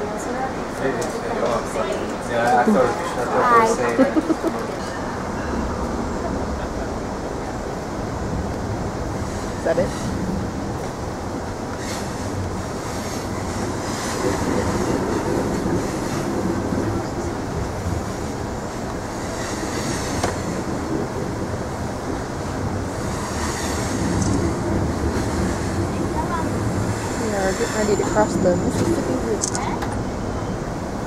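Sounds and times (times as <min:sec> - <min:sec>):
train rumble and wheel noise: 0:00.0 - 0:31.0
high wheel squeals: 0:23.0 - 0:24.0, 0:26.7 - 0:29.3.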